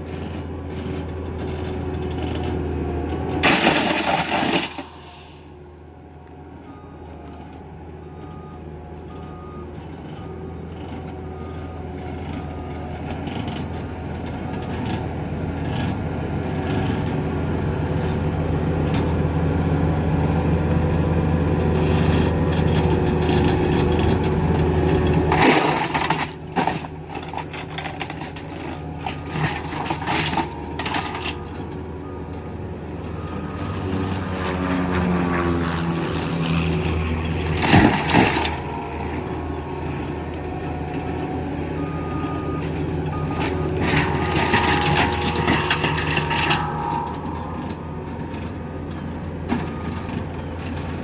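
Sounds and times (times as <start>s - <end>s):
mulcher shredding with grinding: 0.0s - 5.9s, 21.5s - 51.0s
forestry mulcher droning: 0.0s - 51.0s.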